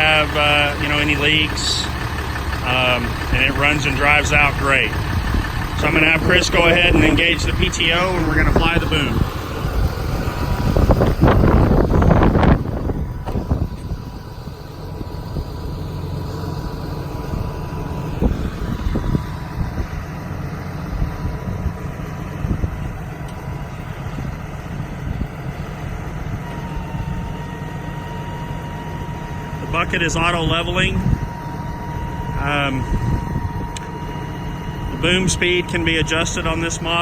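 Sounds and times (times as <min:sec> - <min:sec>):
diesel engine idling: 0:00.0 - 0:37.0
thin steady whine: 0:00.0 - 0:37.0
short clunks: 0:10.8 - 0:14.0.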